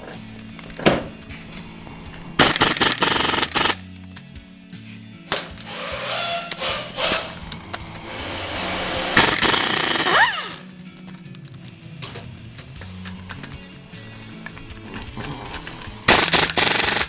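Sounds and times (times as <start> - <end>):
background music: 0.0 - 17.0
power tool whirring: 1.4 - 3.9, 5.3 - 10.8, 12.7 - 17.0.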